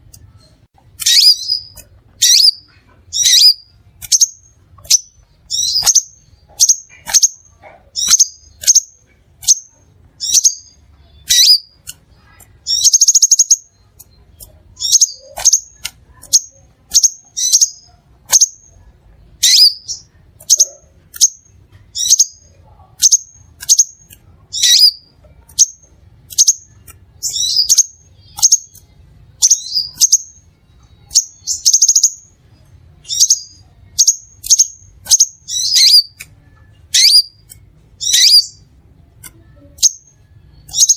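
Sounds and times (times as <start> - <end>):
bird high sharp chips: 0.9 - 18.8, 33.0 - 38.6
bird buzzy trills: 36.9 - 38.7.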